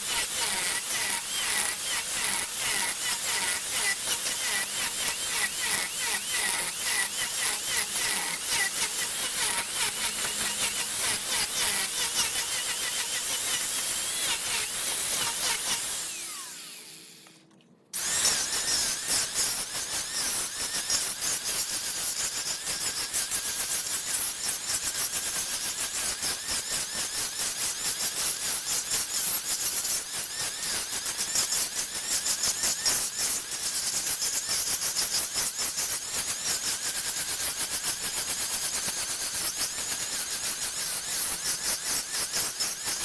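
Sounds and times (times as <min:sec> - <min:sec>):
wood lathe tool scraping wood: 0:00.1 - 0:16.8.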